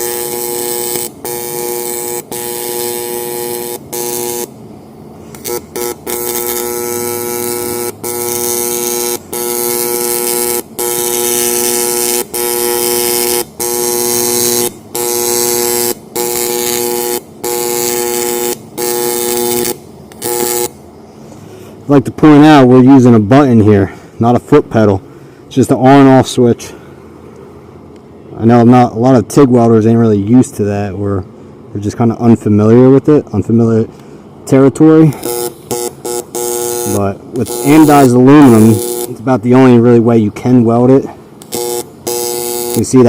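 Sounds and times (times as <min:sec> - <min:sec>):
welding arc buzzing: 0:00.0 - 0:20.9, 0:34.7 - 0:40.0, 0:40.6 - 0:43.0.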